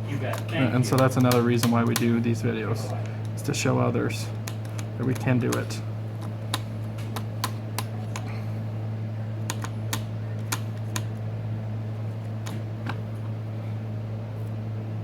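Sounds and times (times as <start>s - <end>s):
low electrical hum: 0.0s - 15.0s
small tools clicking and tapping: 0.3s - 2.2s.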